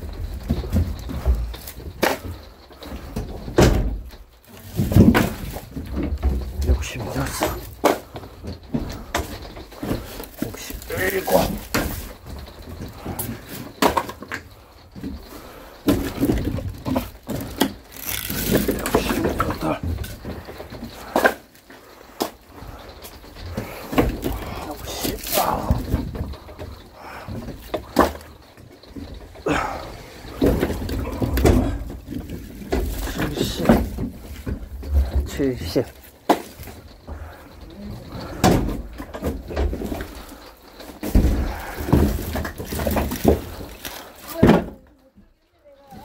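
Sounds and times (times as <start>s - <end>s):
firewood knocks and thuds: 0.0s - 45.0s.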